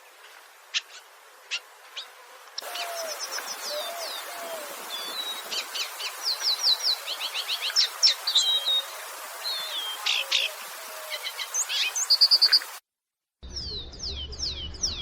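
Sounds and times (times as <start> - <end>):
steady hiss: 0.0 - 12.8
songbirds chirping and singing: 2.6 - 12.8, 13.5 - 15.0.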